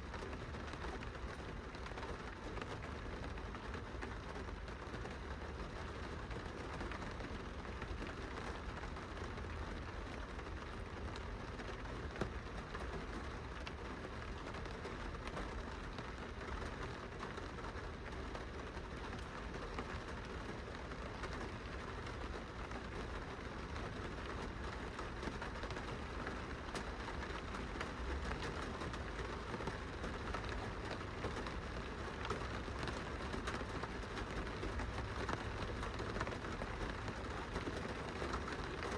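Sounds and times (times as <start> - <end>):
rain on a glass window: 0.0 - 38.9.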